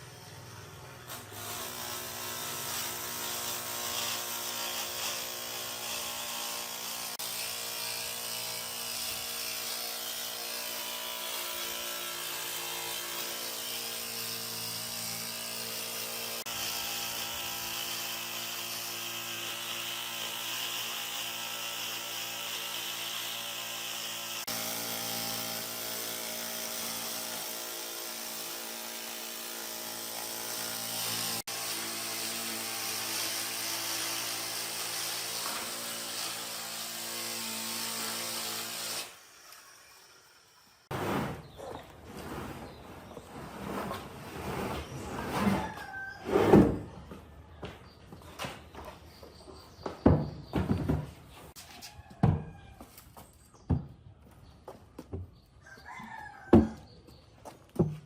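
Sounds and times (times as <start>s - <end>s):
electric power tool whining: 0.1s - 40.9s.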